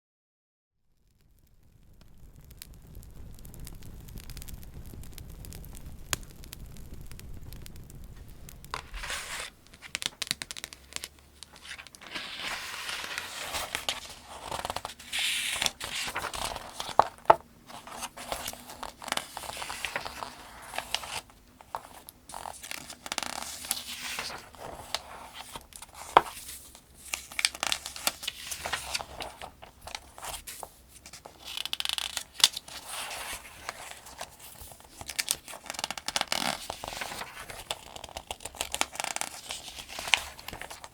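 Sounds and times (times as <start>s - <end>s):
paper pages turning: 8.2s - 40.9s
paper snapping: 8.6s - 40.9s.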